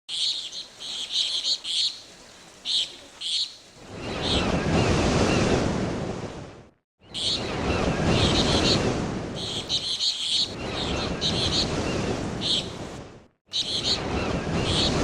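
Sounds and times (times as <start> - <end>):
birds chirping: 0.1 - 4.6, 7.0 - 12.9, 13.5 - 15.0
surf-like rushing noise: 0.1 - 15.0.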